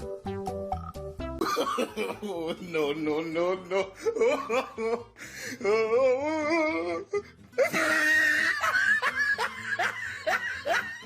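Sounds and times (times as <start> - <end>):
person laughing: 1.4 - 2.9, 3.7 - 11.0.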